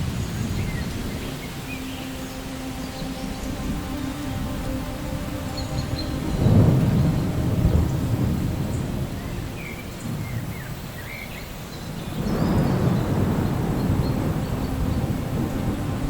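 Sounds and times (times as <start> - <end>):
steady rain: 0.0 - 16.0
rolling thunder: 5.9 - 16.0.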